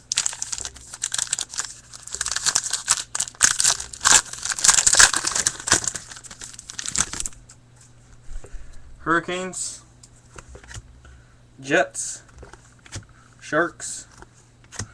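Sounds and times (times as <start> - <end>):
wrapper tearing and crinkling: 0.0 - 7.4.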